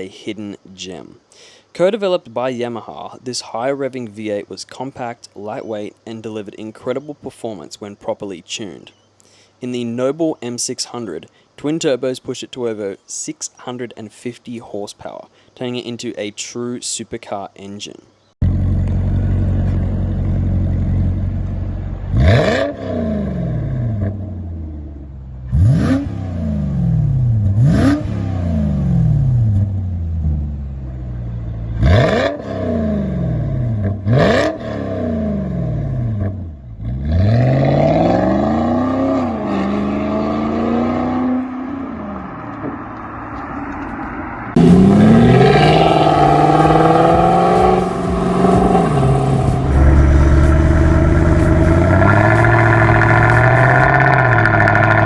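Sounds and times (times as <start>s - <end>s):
engine idling and revving: 18.4s - 42.2s, 43.8s - 55.0s.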